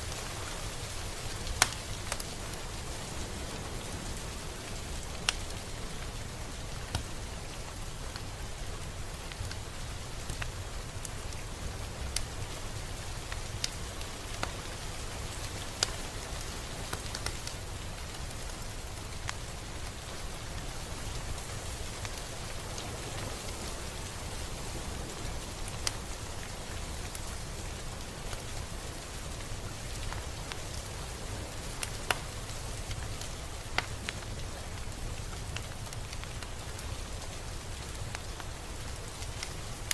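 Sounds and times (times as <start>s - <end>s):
steady rain hiss: 0.0s - 39.9s
raindrops ticking: 15.4s - 39.9s.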